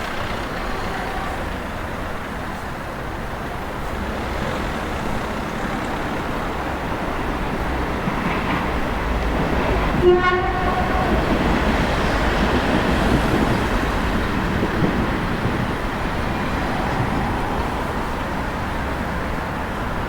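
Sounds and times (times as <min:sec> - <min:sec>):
street traffic rumble: 0:00.0 - 0:20.0
vehicle horn toot: 0:10.0 - 0:11.3.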